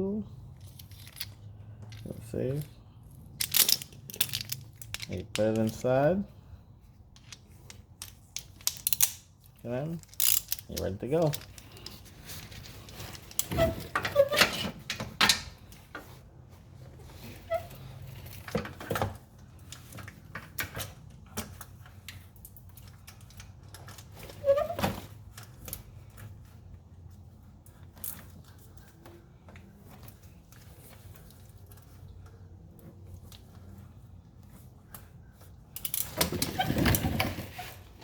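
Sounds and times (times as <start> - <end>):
metallic tool clicks and clinks: 10.0 - 11.9.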